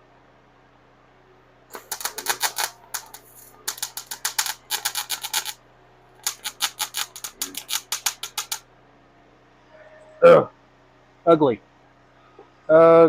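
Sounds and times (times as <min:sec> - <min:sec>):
welder crackling: 0:01.7 - 0:05.6, 0:06.2 - 0:08.6.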